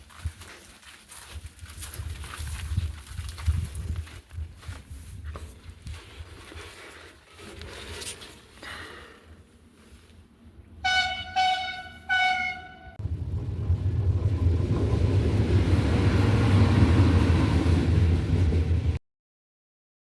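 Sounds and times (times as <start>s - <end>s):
train passing with low rumble: 9.4s - 19.0s
train horn: 10.8s - 13.1s.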